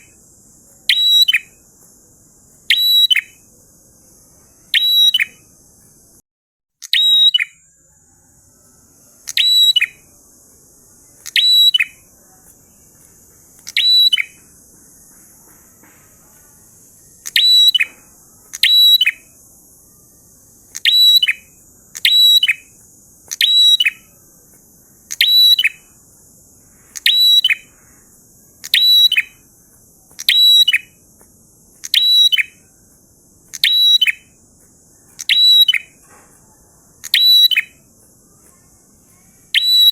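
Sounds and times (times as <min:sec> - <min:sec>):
bird shrill chirping song: 0:00.0 - 0:06.2, 0:06.8 - 0:39.9
faint high hiss: 0:00.0 - 0:06.2.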